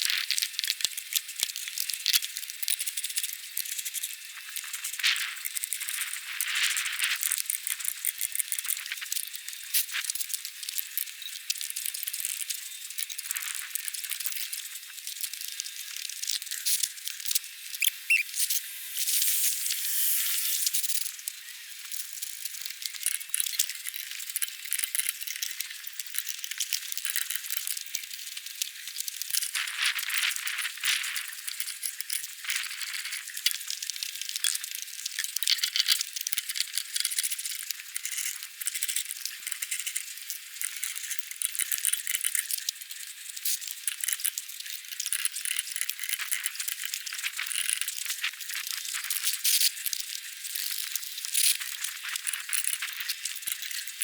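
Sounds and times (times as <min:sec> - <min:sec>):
brief squeak: 0:17.8 - 0:18.5.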